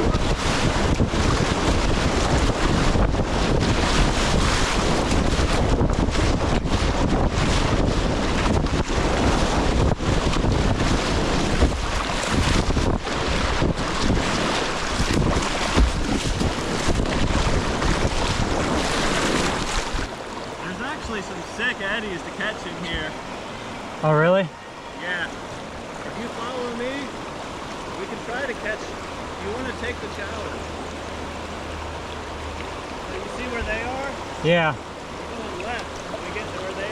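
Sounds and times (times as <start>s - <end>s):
wind buffeting microphone: 0.0s - 21.4s
whitewater rushing: 0.0s - 36.9s.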